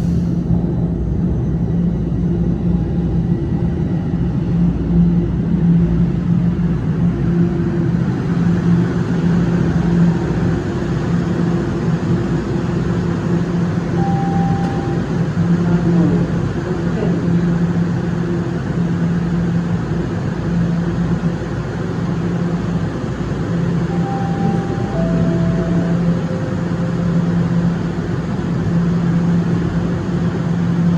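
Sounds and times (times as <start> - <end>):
subway train humming: 0.0 - 30.9
three-note door chime: 14.0 - 15.2, 23.8 - 28.2.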